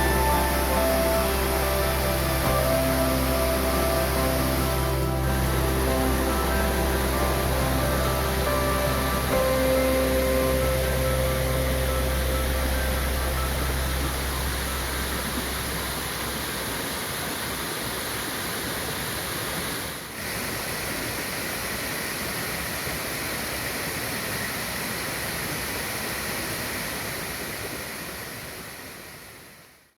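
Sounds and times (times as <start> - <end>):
low background music: 0.0 - 16.4
river water rushing: 0.0 - 29.7.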